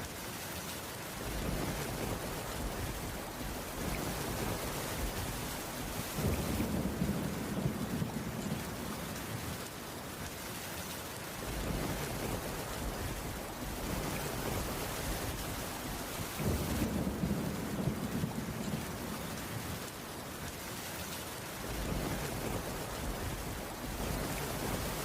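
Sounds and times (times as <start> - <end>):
heavy rain on a roof: 0.0 - 25.0
thunder rolling: 1.3 - 9.1, 11.4 - 19.1.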